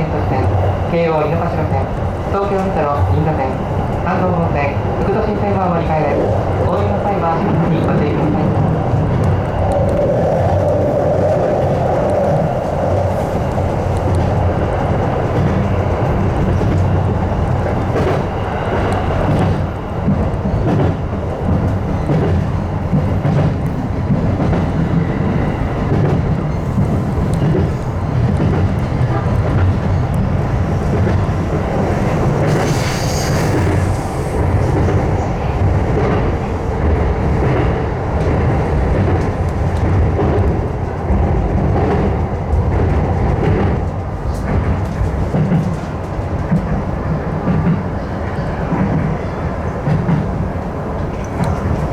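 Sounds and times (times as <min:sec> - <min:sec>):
train rumbling on rails: 0:00.0 - 0:51.9
brief high hiss: 0:32.5 - 0:34.4.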